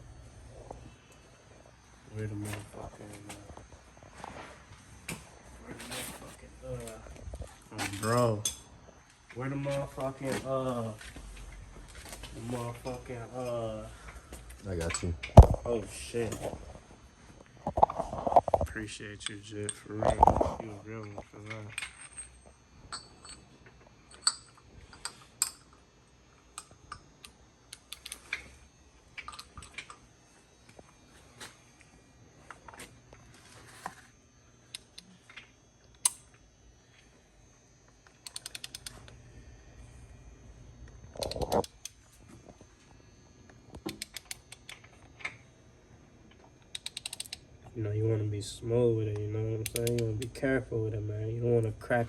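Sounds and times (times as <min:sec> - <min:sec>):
small metal tools clicking: 0:24.1 - 0:25.8, 0:26.5 - 0:28.4, 0:38.2 - 0:39.1, 0:43.9 - 0:45.3, 0:46.7 - 0:47.4, 0:49.6 - 0:50.4.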